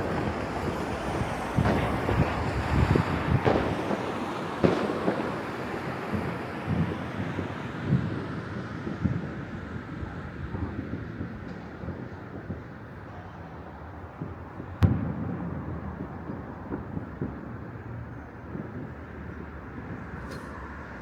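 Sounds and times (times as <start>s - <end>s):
distant fireworks thudding: 0.0s - 9.8s, 14.1s - 20.9s
wind buffeting microphone: 0.0s - 13.1s.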